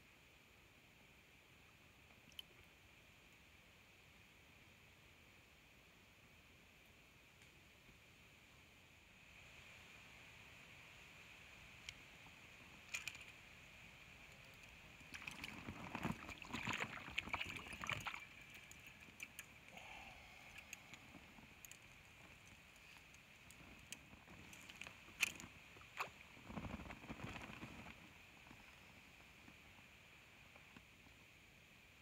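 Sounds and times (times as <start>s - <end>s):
fish splashing at surface: 15.1s - 21.0s.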